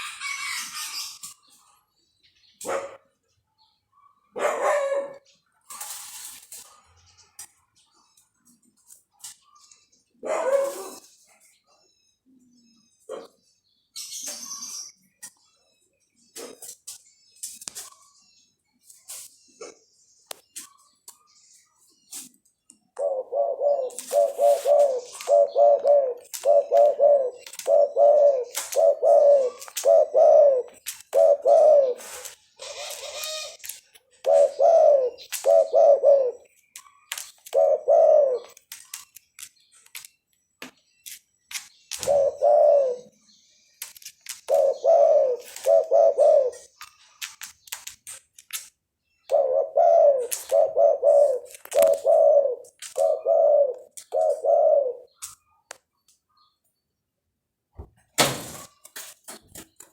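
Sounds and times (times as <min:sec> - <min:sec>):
faint high clicks and chirps: 0:05.2 - 0:10.1, 0:13.0 - 0:23.1, 0:26.2 - 0:27.9, 0:28.5 - 0:28.9, 0:29.5 - 0:30.0, 0:30.7 - 0:31.3, 0:32.0 - 0:34.5, 0:35.2 - 0:35.8, 0:36.4 - 0:37.7, 0:38.4 - 0:42.3, 0:43.0 - 0:45.9, 0:46.5 - 0:49.4, 0:51.4 - 0:54.4, 0:55.1 - 0:56.8
doves cooing: 0:10.3 - 0:11.1, 0:23.0 - 0:36.5, 0:37.1 - 0:39.0, 0:41.9 - 0:43.2, 0:44.3 - 0:47.4, 0:49.3 - 0:55.4.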